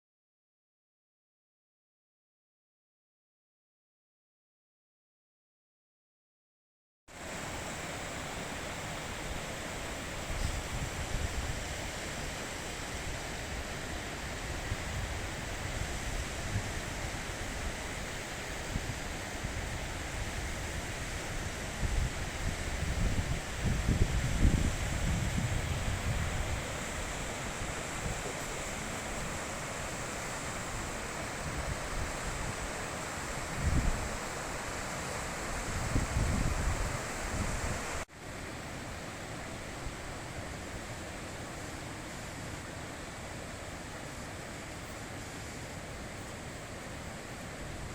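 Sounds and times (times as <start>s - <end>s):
river rushing over rocks: 7.1s - 47.9s
wind on microphone: 9.2s - 38.0s.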